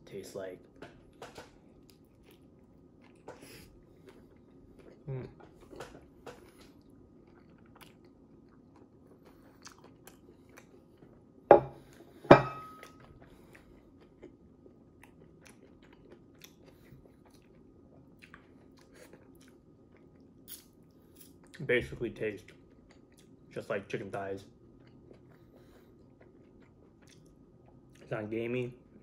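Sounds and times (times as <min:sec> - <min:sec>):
man chewing food: 0:00.6 - 0:21.6, 0:22.4 - 0:23.5, 0:24.6 - 0:28.1
ceramic plate set on table: 0:11.5 - 0:12.9.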